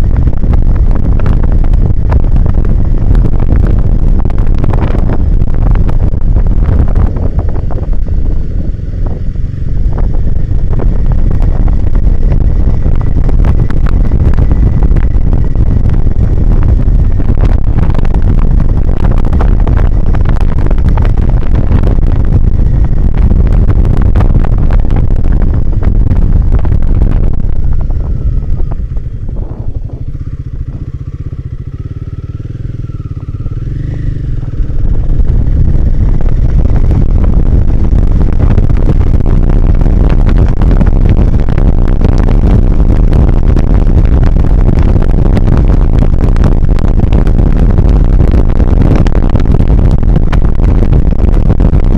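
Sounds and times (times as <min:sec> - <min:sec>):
motorcycle engine running: 0:00.0 - 0:51.9
wind buffeting microphone: 0:00.0 - 0:51.9.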